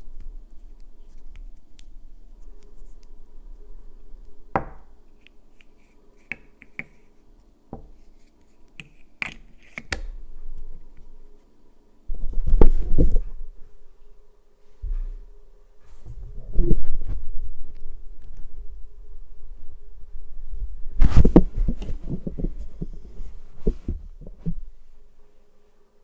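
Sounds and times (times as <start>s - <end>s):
bumping and rustling close to microphone: 21.0s - 24.7s.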